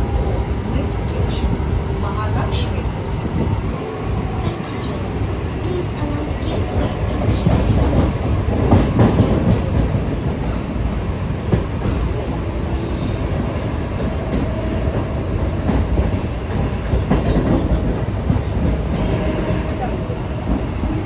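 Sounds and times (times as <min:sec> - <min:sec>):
train wheels rumbling on track: 0:00.0 - 0:21.0
faint high wheel squeal: 0:12.9 - 0:15.0.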